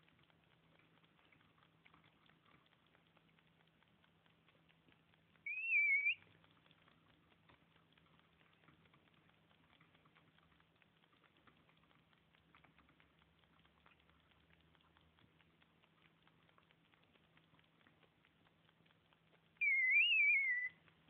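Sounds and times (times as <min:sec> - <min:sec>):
faint crackling: 0:00.0 - 0:21.0
high wavering whistle: 0:05.5 - 0:06.2, 0:19.6 - 0:20.8.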